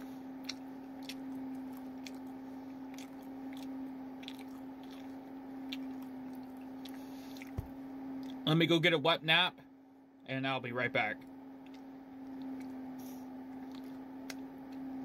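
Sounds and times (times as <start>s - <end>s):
steady low hum: 0.0s - 15.0s
person chewing with wet smacks: 0.3s - 8.4s, 11.2s - 12.8s, 13.5s - 15.0s.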